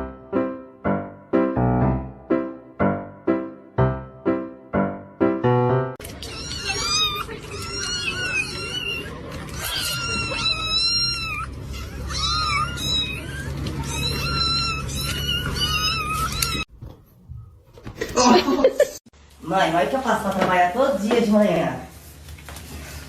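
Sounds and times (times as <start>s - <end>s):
cat meowing: 6.0s - 16.7s.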